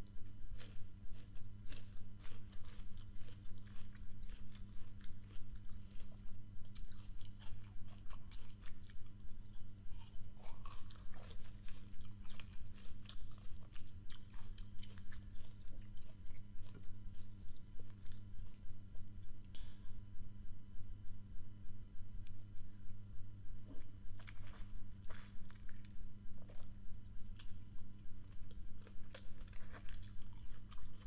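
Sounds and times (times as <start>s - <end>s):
faint low hum: 0.0s - 31.0s
crunching crisp fruit: 0.2s - 18.7s, 28.3s - 31.0s.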